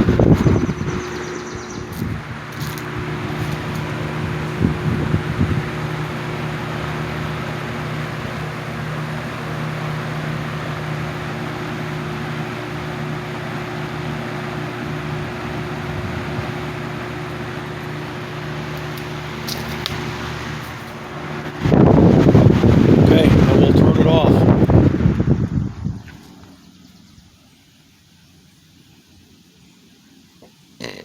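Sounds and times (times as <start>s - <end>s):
box fan air rush: 0.0s - 30.8s
fan motor hum: 0.0s - 31.0s.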